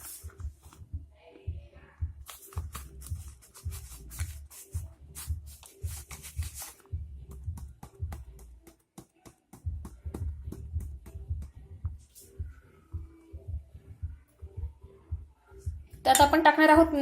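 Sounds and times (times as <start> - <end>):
background music with steady beat: 0.0 - 17.0.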